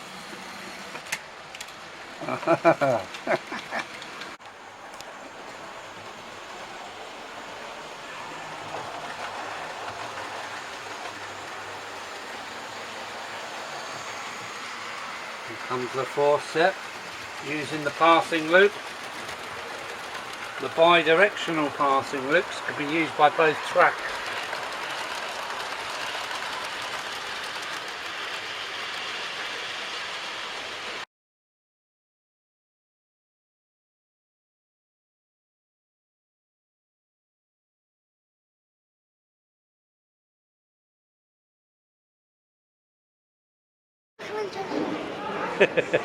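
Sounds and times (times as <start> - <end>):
model train rolling rattle: 0.1 - 31.0.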